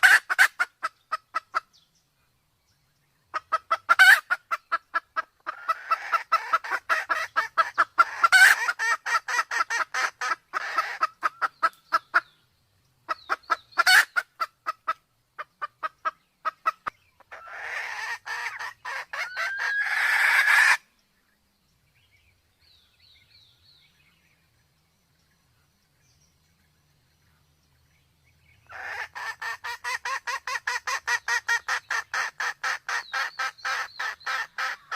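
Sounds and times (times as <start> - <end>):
junglefowl clucking: 0.0 - 1.8, 3.3 - 12.4, 13.0 - 20.9, 28.6 - 34.9
faint chirping: 0.0 - 34.9
junglefowl sharp call: 16.6 - 20.8, 28.7 - 34.9.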